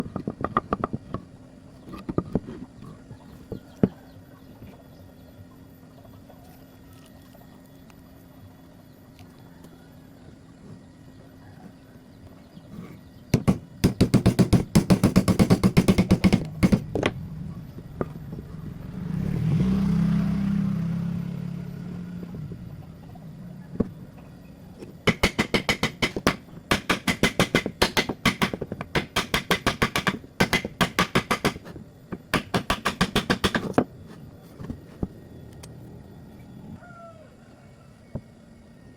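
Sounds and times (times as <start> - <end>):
motor humming: 0.0 - 38.9
hammer tapping on wood: 13.4 - 17.1, 25.1 - 31.7, 32.3 - 33.8.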